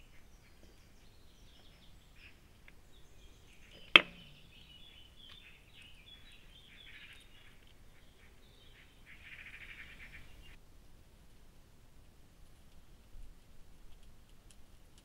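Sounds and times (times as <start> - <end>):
faint birdsong: 0.0 - 10.6.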